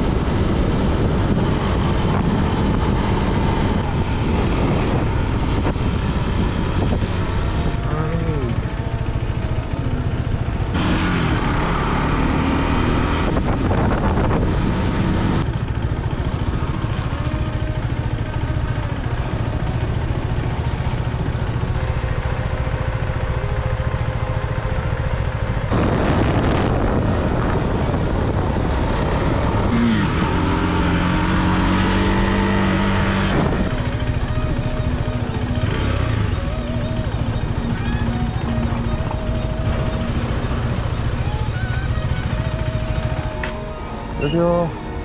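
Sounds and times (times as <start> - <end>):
wind noise: 0.0 - 8.0, 12.5 - 17.2, 25.7 - 34.7
motorcycle engine running: 0.0 - 45.0.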